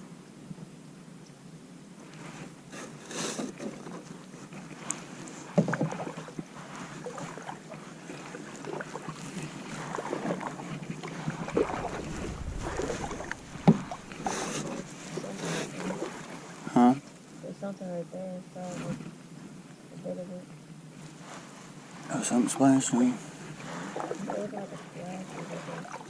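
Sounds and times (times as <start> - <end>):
paddle strokes swishing and dripping: 2.2 - 16.7, 23.3 - 26.0
knocks against canoe hull: 5.6 - 6.1, 11.5 - 14.8.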